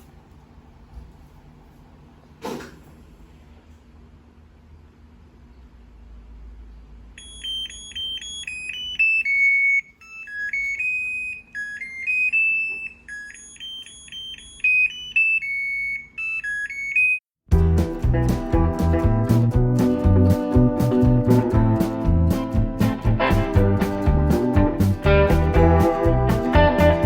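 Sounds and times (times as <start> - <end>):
washing machine beeping melody: 7.2 - 27.0
background music: 17.5 - 27.0.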